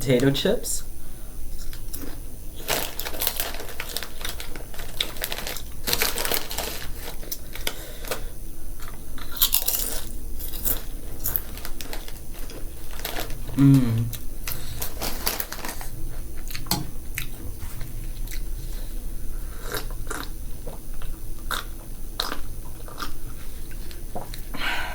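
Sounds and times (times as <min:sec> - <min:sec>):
potato chips crunching: 0:01.6 - 0:08.2, 0:08.8 - 0:17.3, 0:19.6 - 0:23.2.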